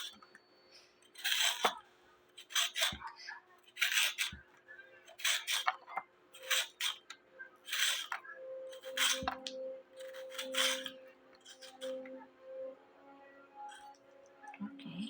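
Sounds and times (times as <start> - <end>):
faint steady tone: 5.8 - 15.0.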